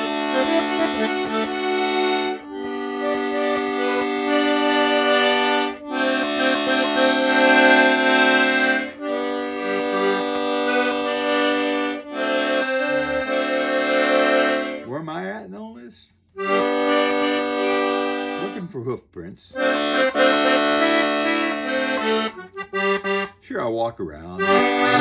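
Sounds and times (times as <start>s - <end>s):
accordion sustained chords: 0.0s - 15.3s, 16.3s - 23.5s, 24.3s - 25.0s.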